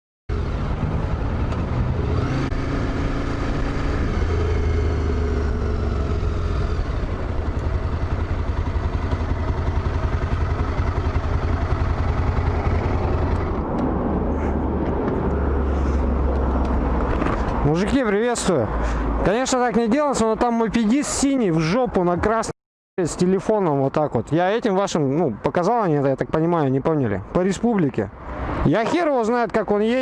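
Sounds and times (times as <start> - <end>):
motorcycle engine rumble: 0.3 - 17.8.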